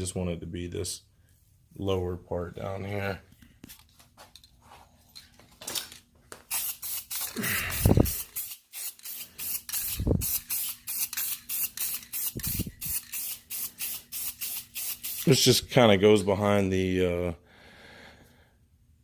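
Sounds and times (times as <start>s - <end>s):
aerosol spray can bursts: 6.5s - 15.4s.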